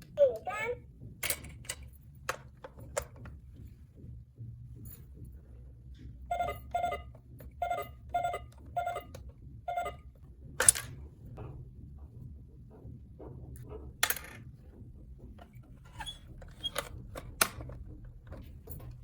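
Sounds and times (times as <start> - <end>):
short electronic beeps: 6.3 - 9.1, 9.7 - 10.0.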